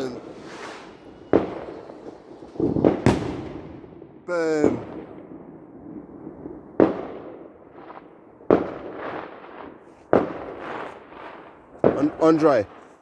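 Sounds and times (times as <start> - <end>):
faint firework pops: 0.0 - 5.3, 7.9 - 13.0
loud firework bangs: 0.0 - 13.0.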